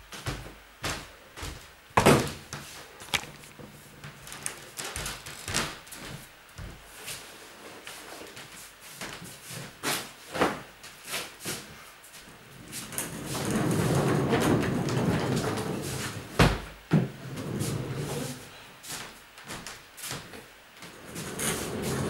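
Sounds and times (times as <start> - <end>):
objects knocking and scraping: 3.0 - 3.7.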